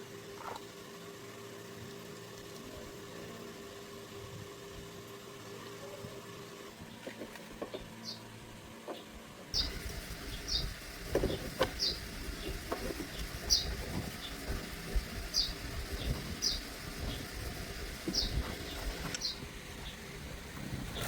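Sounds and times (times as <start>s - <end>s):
workshop background noise: 1.8s - 21.0s
bird chirping: 7.7s - 8.3s, 8.9s - 17.4s, 18.0s - 20.1s.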